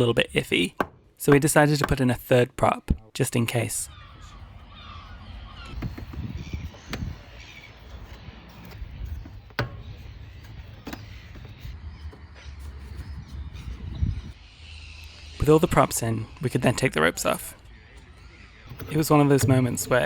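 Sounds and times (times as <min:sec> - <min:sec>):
low wind rumble on microphone: 0:03.9 - 0:15.4.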